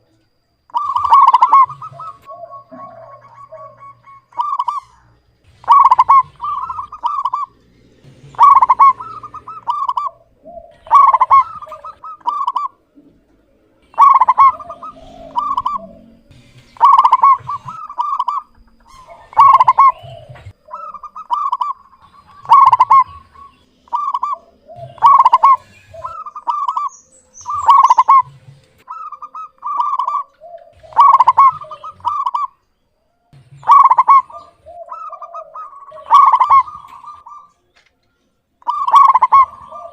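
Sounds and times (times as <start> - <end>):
dove cooing: 0.7 - 32.7, 33.4 - 37.7, 38.6 - 39.9.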